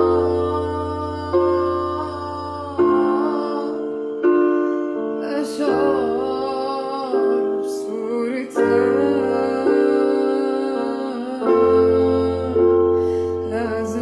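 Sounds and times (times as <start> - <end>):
sustained keyboard chords: 0.0 - 7.7
woman singing: 0.0 - 14.0.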